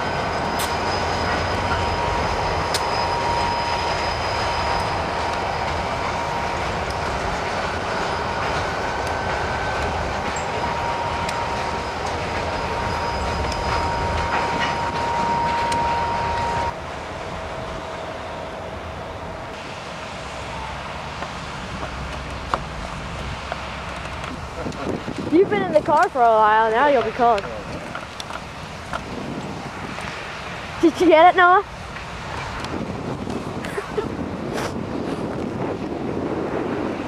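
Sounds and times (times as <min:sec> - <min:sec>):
thin wheel squeal: 0:00.0 - 0:07.2, 0:07.8 - 0:16.7
train wheels clacking on rails: 0:00.0 - 0:16.8.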